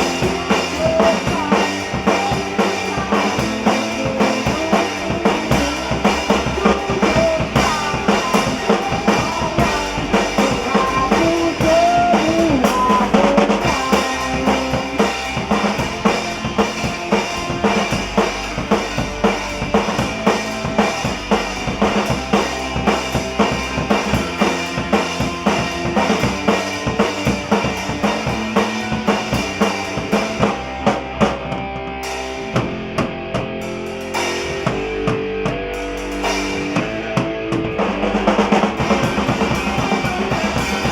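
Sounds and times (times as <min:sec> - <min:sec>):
drum kit beat: 0:00.0 - 0:40.9
sustained bass and chords: 0:00.0 - 0:40.9
lead guitar bending notes: 0:30.6 - 0:40.9.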